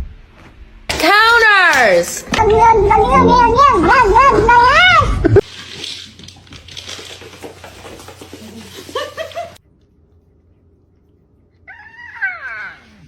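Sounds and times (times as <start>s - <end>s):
low hum: 2.1s - 6.7s.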